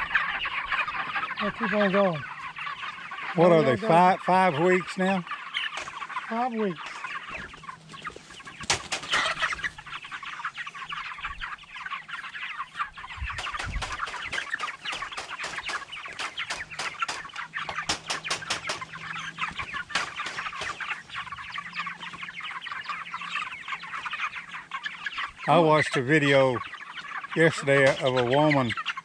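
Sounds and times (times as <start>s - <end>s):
chickens peeping and clucking: 0.0s - 29.0s.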